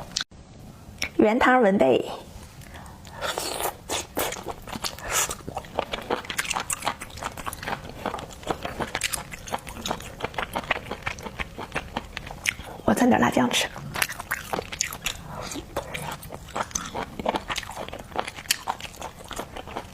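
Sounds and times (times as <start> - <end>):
wet chewing and smacking: 3.3 - 12.8, 13.7 - 19.9.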